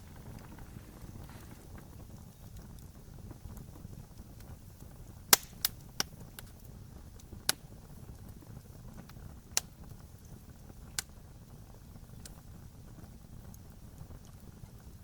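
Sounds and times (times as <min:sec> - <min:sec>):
low rumble: 0:00.0 - 0:02.1
wood fire crackling and popping: 0:00.0 - 0:15.0.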